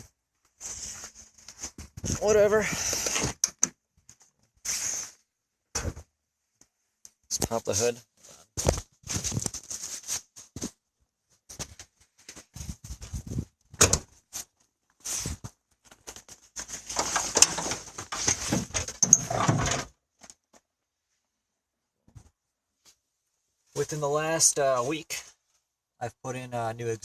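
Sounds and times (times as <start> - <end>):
car hood rattling and scraping: 16.6 - 20.0.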